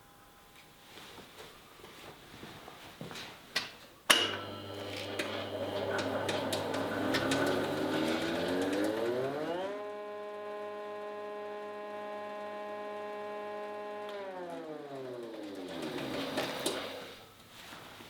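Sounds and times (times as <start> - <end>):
electric motor whining: 4.2 - 17.2.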